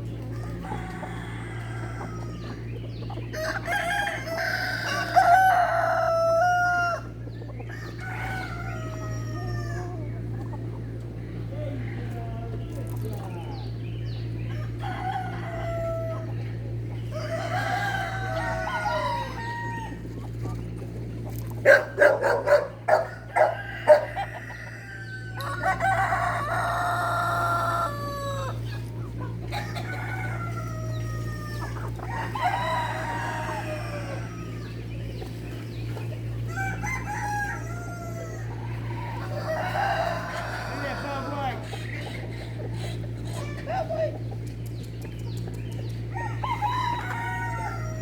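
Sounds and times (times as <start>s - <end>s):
roosters crowing: 0.0s - 48.0s
steady low hum: 0.0s - 48.0s.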